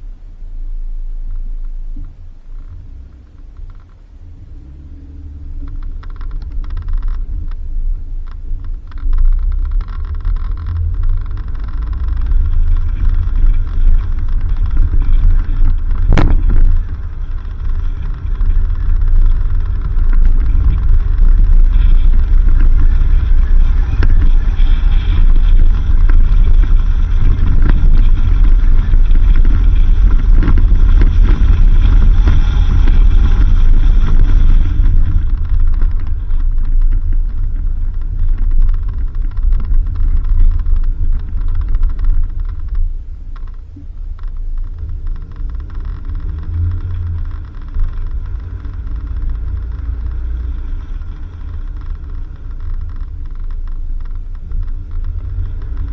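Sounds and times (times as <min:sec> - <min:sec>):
vehicle driving on dirt road: 0:00.0 - 0:55.9
sharp knock: 0:16.1 - 0:17.0.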